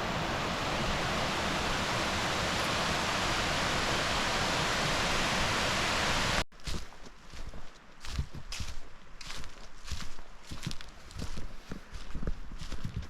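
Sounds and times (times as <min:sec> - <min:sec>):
waterfall roaring: 0:00.0 - 0:06.4.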